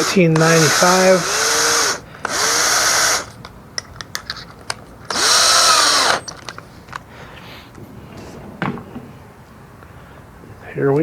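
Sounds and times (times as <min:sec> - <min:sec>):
electric drill motor burst: 0:00.0 - 0:03.4, 0:05.1 - 0:06.4.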